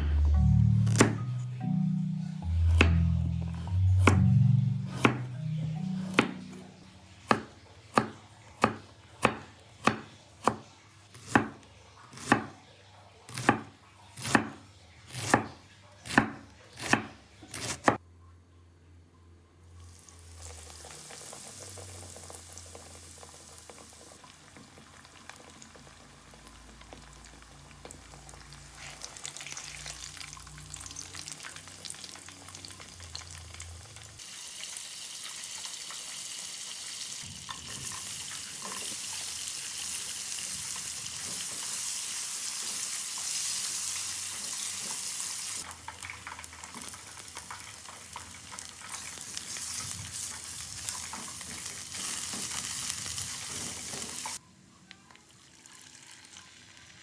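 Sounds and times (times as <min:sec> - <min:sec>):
onion and garlic sauteing: 0:19.8 - 0:54.4
food deep-frying in hot oil: 0:19.8 - 0:57.0.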